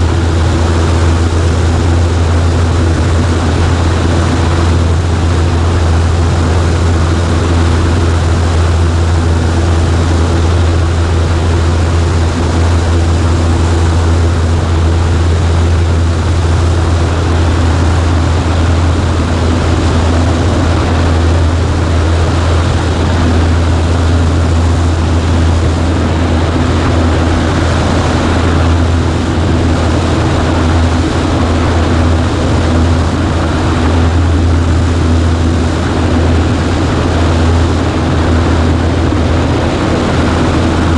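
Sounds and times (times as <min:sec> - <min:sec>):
propeller aircraft engine humming: 0:00.0 - 0:40.9.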